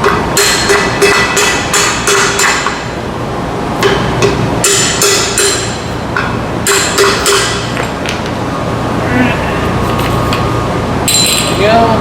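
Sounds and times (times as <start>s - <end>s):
hammer striking metal: 0.0s - 2.9s, 3.8s - 7.9s.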